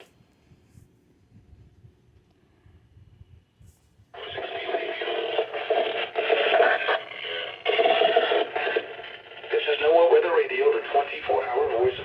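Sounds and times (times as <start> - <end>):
noisy radio broadcast signal: 4.1 - 12.0.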